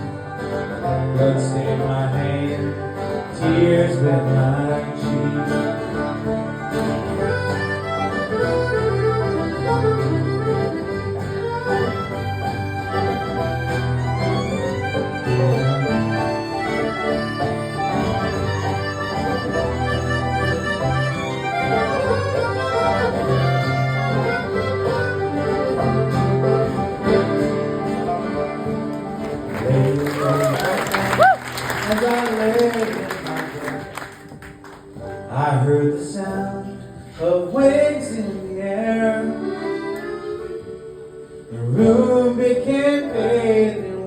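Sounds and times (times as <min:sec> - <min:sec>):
acoustic guitar: 0:00.0 - 0:44.0
sustained melody line: 0:03.5 - 0:30.4.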